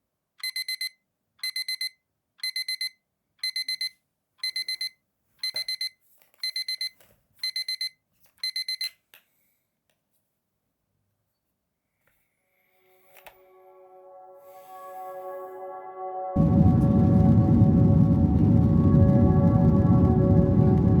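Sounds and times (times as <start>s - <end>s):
digital alarm beeping: 0.4s - 8.9s.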